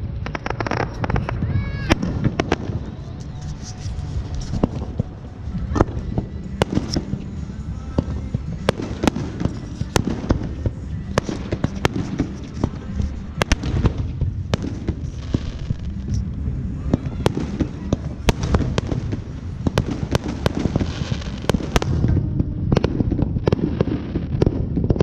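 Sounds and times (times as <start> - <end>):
distant explosions rumbling: 0.0 - 25.0
fireworks bangs and pops: 0.0 - 25.0.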